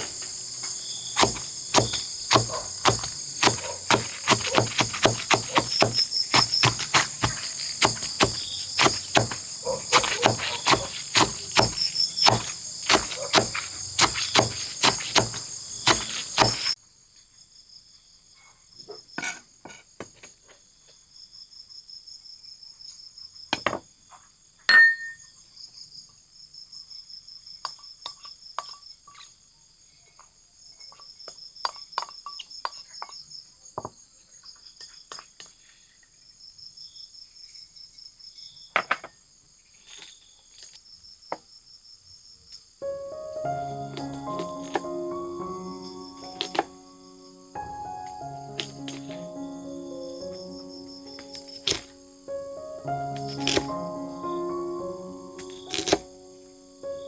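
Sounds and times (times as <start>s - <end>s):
insect chorus: 0.0s - 24.6s, 25.2s - 57.0s
sharp knocks: 1.2s - 16.8s, 46.2s - 46.8s.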